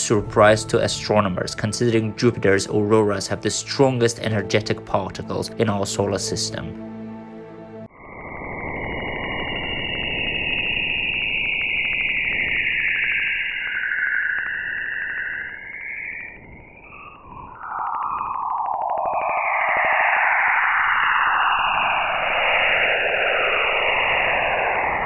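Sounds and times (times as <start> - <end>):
eerie wavering whistle: 7.9 - 25.0.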